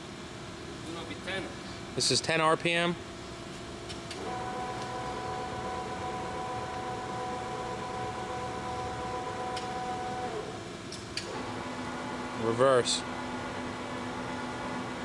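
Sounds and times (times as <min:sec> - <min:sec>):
mechanical hum: 0:00.0 - 0:15.0
lathe gearing whine: 0:04.2 - 0:15.0.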